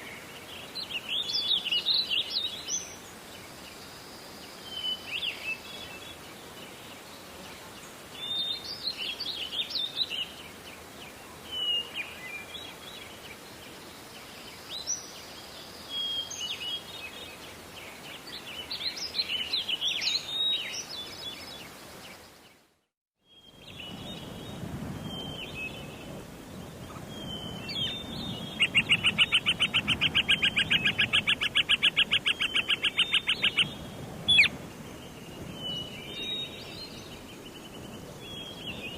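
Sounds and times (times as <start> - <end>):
songbirds chirping: 0.0 - 38.9
loud rapid bird trill: 27.2 - 34.5.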